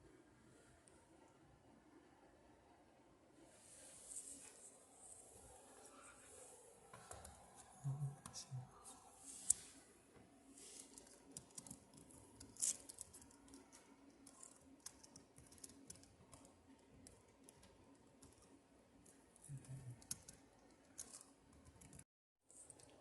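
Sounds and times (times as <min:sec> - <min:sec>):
faint clicks and taps: 0:06.9 - 0:08.4, 0:09.5 - 0:23.0.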